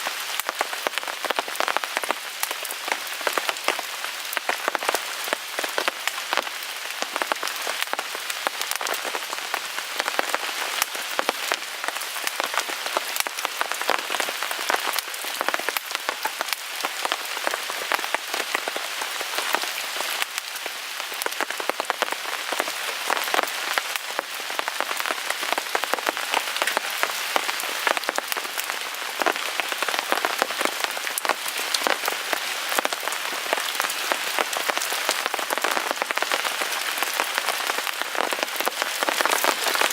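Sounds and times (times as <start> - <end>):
rain on a tarp: 0.0 - 39.9.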